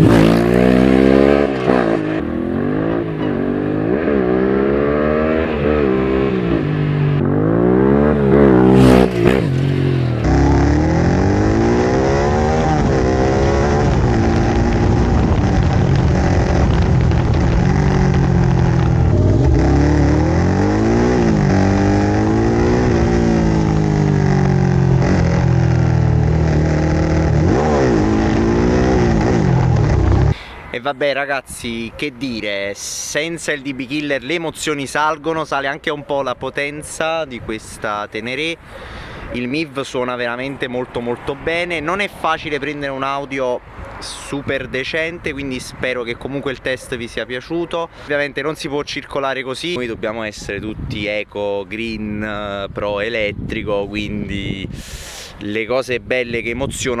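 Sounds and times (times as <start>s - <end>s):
motorcycle engine revving: 0.0s - 30.4s.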